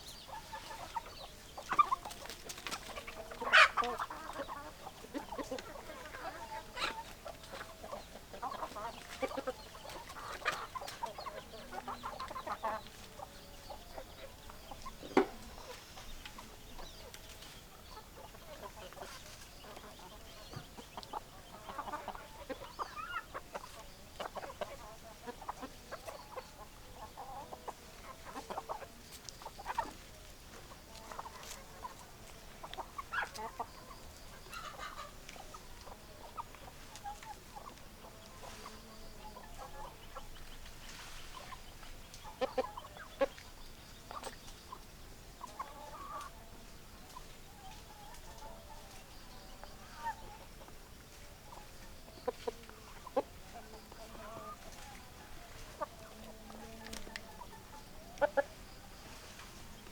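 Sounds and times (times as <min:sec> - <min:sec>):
hens clucking: 0:00.0 - 0:59.9.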